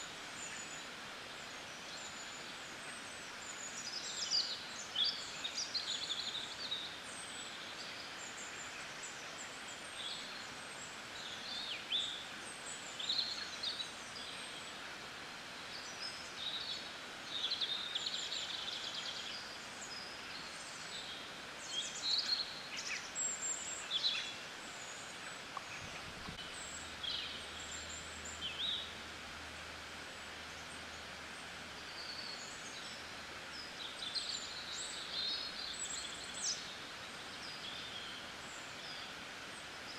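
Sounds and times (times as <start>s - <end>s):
small birds chirping: 0.0s - 39.9s
rain hissing: 21.5s - 37.6s.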